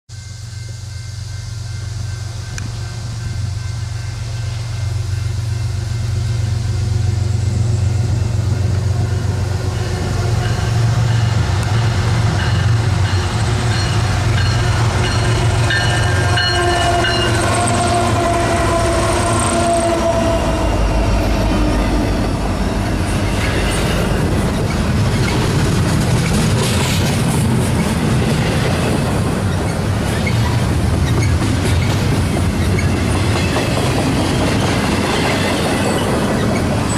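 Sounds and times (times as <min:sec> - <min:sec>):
diesel locomotive engines rumbling: 0:00.1 - 0:36.9
train wheels clicking over rail joints: 0:01.8 - 0:18.7, 0:22.2 - 0:36.9
train horn chord: 0:14.4 - 0:23.2.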